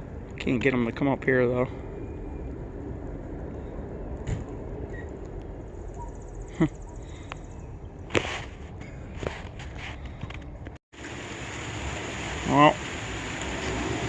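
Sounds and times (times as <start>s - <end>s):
rain falling: 11.0s - 14.0s.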